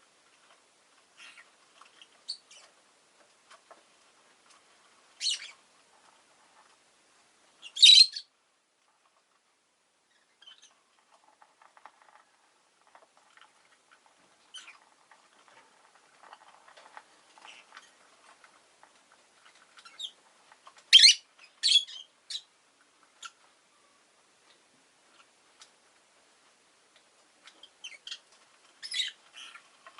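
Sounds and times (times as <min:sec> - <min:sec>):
lovebird chattering: 0:05.2 - 0:05.6, 0:07.6 - 0:08.3, 0:20.9 - 0:22.5
shrill bird calls: 0:07.7 - 0:08.3, 0:20.9 - 0:22.4.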